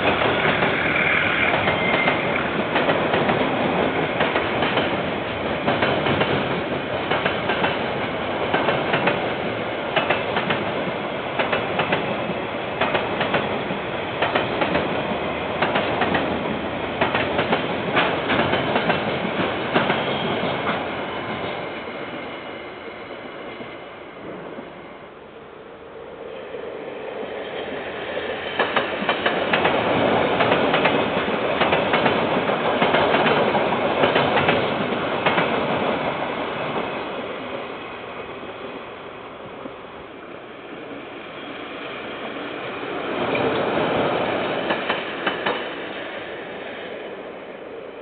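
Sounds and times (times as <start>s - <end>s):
train wheels clicking over rail joints: 0.0s - 5.0s, 5.6s - 10.8s, 11.4s - 13.6s, 14.2s - 15.0s, 15.6s - 16.4s, 17.0s - 20.9s, 28.6s - 36.2s, 44.4s - 45.8s.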